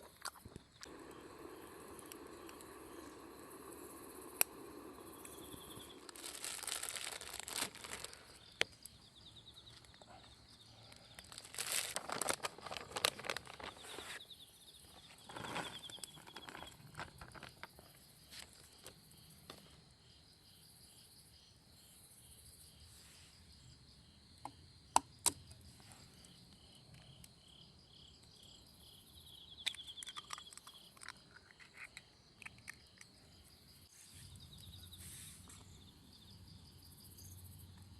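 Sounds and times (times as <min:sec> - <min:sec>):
insects chirping trill: 0:00.0 - 0:37.9
rustling and crinkling: 0:05.6 - 0:08.8, 0:09.6 - 0:14.2, 0:14.8 - 0:19.0.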